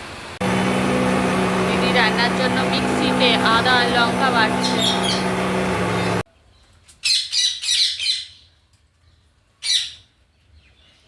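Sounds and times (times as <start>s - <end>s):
mixer grinder grinding: 0.4s - 6.2s.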